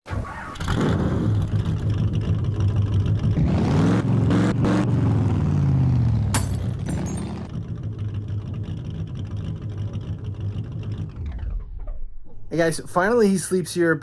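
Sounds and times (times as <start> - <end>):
car engine running: 6.3 - 11.9.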